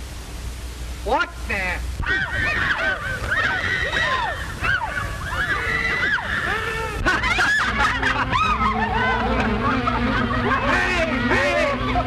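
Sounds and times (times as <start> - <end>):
man yelping and howling: 2.0 - 9.2, 10.5 - 12.0
soundtrack hum: 7.2 - 12.0.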